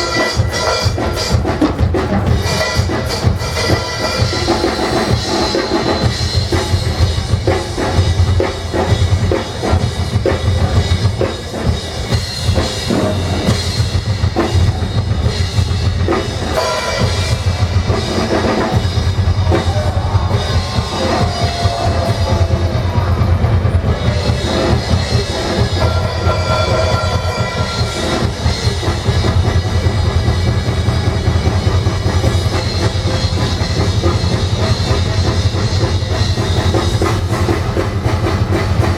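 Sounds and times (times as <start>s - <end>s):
drum kit and percussion ensemble: 0.0s - 38.9s.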